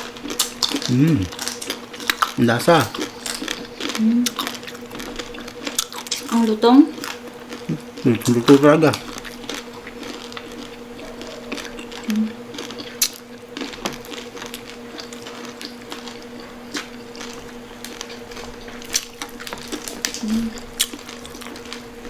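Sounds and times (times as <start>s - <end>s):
crunchy chewing: 0.0s - 22.0s.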